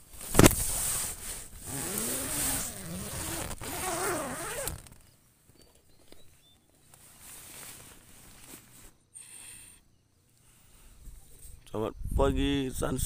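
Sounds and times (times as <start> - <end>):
tent fabric rustling: 0.0 - 5.0, 6.8 - 9.0.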